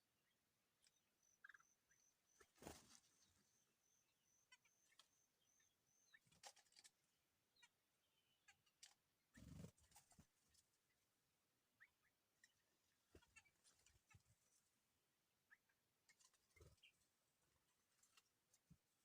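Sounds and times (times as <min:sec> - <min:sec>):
high bird chirps: 0:00.8 - 0:06.4.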